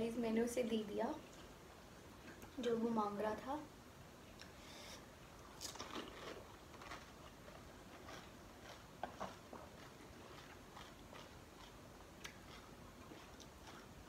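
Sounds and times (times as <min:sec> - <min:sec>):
crisp shell crunching when chewed: 0:05.5 - 0:14.0.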